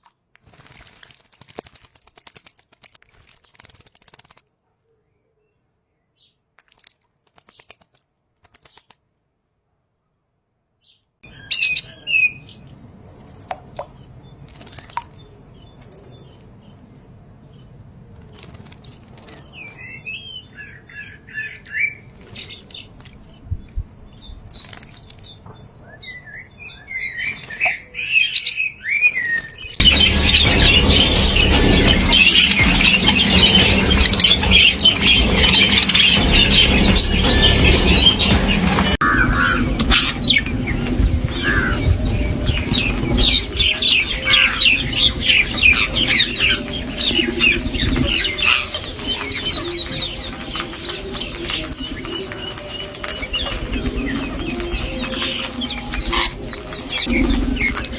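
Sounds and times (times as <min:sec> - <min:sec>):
birds chirping and calling: 0:11.3 - 0:17.7, 0:18.3 - 0:57.9
loud dense noise: 0:29.8 - 0:57.9.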